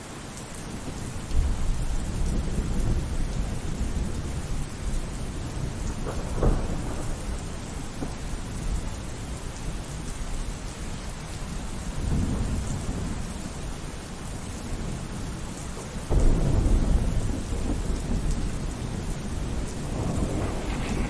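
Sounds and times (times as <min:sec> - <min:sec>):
steady rain: 0:00.0 - 0:21.0
rolling thunder: 0:00.9 - 0:08.8, 0:16.1 - 0:21.0.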